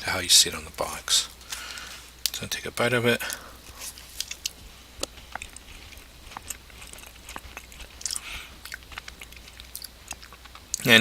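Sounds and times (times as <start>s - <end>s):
ice cream sandwich crunching: 3.2s - 11.0s
chewing mouth sounds: 3.7s - 10.9s.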